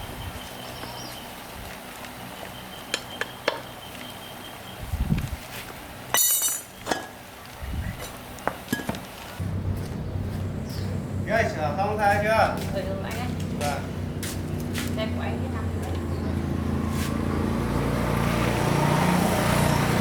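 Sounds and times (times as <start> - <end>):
hard objects clinking: 6.2 - 7.1.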